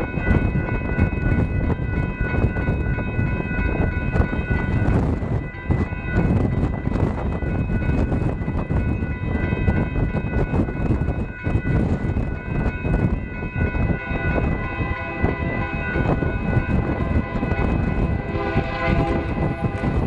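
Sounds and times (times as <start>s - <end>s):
train rumbling past: 1.5s - 20.0s
wheel clatter on rails: 13.5s - 20.0s
train horn: 13.6s - 20.0s.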